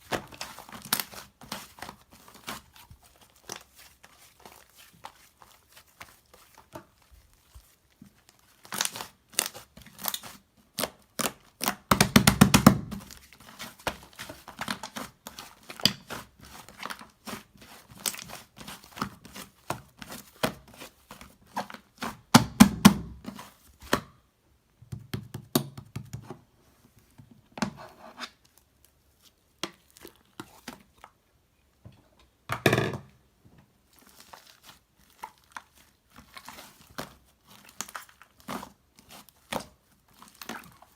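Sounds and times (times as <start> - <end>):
crinkling and tearing by hand: 0.0 - 22.3, 33.8 - 40.9.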